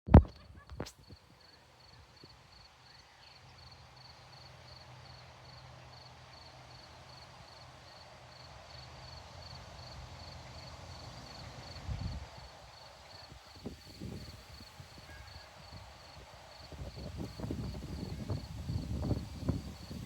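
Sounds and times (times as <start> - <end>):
crickets chirping: 0.3 - 20.0
grass rustling in wind: 9.2 - 20.0.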